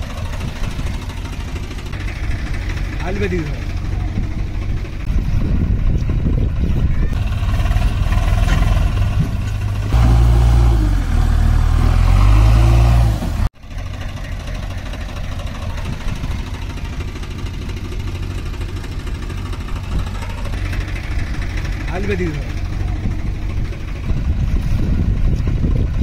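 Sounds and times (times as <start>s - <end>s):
heavy diesel engines revving: 0.0s - 26.0s.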